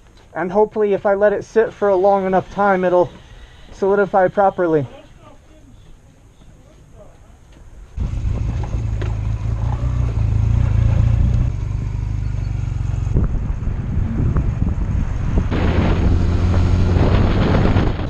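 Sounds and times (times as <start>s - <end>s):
motorcycle engine running: 8.0s - 18.0s
wind on microphone: 10.7s - 18.0s.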